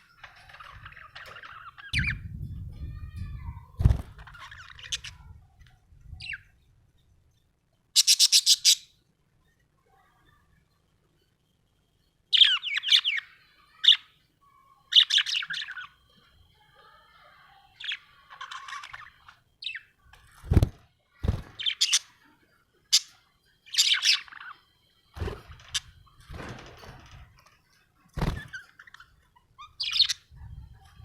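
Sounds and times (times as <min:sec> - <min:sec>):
budgerigar chirping: 0:08.0 - 0:08.9, 0:29.6 - 0:30.3.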